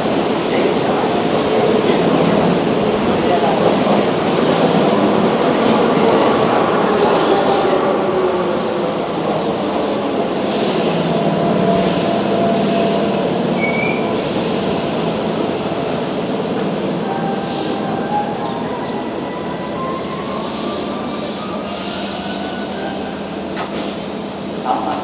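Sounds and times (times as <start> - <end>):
train wheels rumbling on rail: 0.0 - 25.0
high brake squeals: 13.6 - 14.2.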